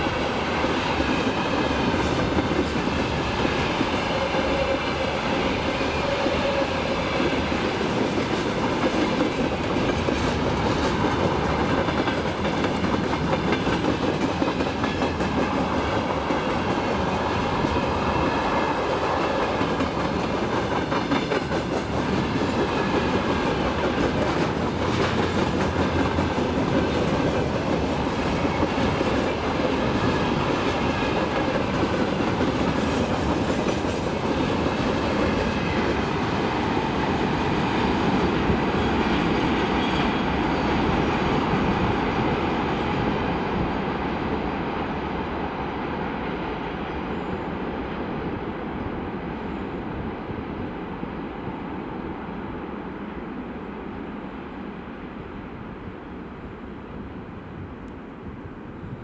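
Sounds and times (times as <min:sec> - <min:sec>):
freight train wagons rolling: 0:00.0 - 0:42.4.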